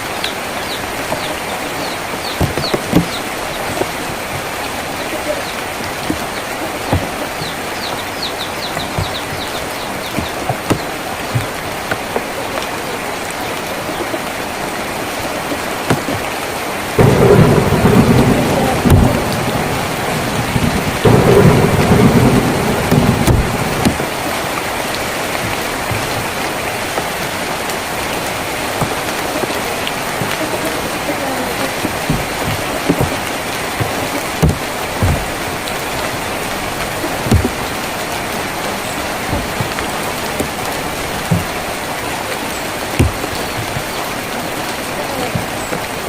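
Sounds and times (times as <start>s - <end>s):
rain on a tin roof: 0.0s - 46.0s
thunder rumbling: 16.8s - 46.0s.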